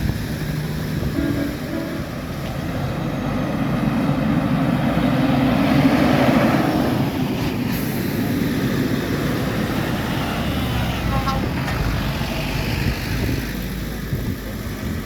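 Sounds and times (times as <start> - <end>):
vehicle engine passing: 0.3 - 15.0.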